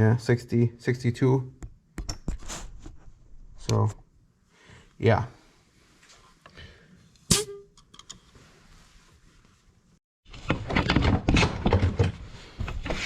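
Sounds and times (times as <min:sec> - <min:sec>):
objects clattering on a workbench: 0:10.3 - 0:13.0.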